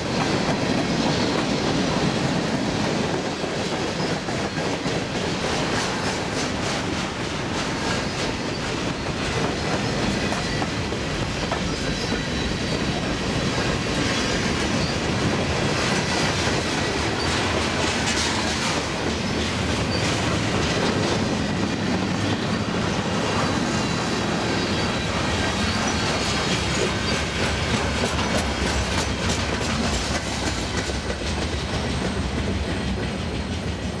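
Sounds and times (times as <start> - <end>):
wheels clicking over rail joints: 0.0 - 34.0
faint high wheel squeal: 11.6 - 13.0, 22.2 - 27.4.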